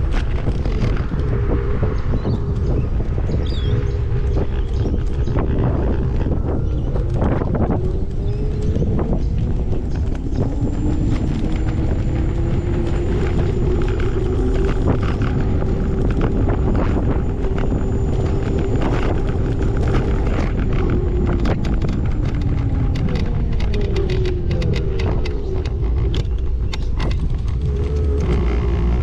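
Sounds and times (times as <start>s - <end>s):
heavy low rumble: 0.0s - 29.0s
vehicle motor whining: 0.0s - 29.0s
clicks and rattles: 6.9s - 29.0s.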